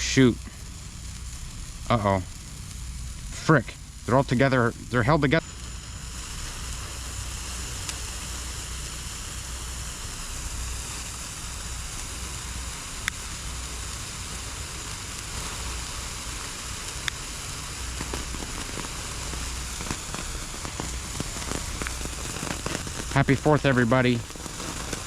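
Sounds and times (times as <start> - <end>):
sparklers fizzing and crackling: 0.0 - 25.0
sharp pops: 14.8 - 25.0.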